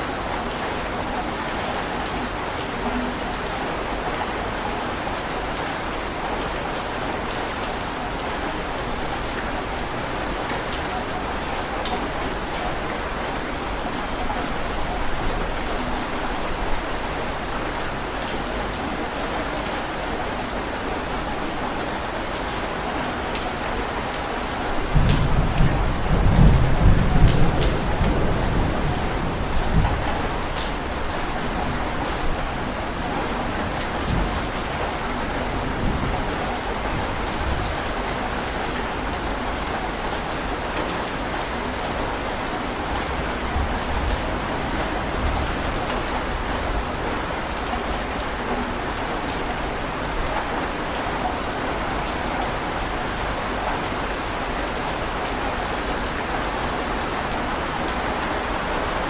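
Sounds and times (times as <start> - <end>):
heavy rain: 0.0 - 59.0
low thunder rumble: 24.8 - 32.4.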